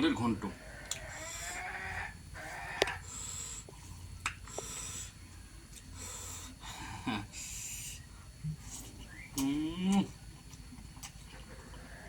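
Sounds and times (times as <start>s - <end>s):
chewing and mouth noises: 8.6s - 12.0s.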